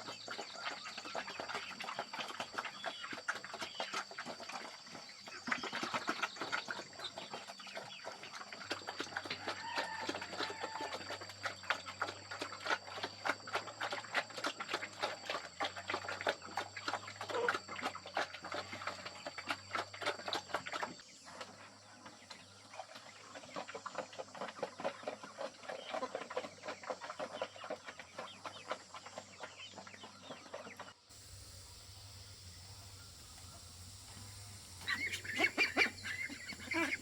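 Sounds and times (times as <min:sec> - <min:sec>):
chickens clucking: 0:22.3 - 0:37.0.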